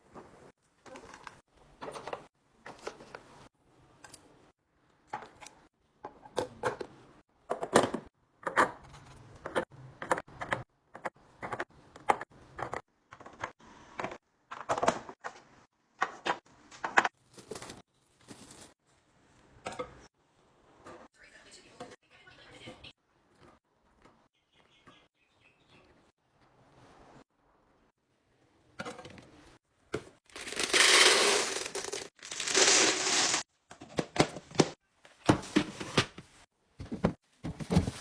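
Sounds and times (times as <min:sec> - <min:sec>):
food containers clattering: 0:30.0 - 0:38.0.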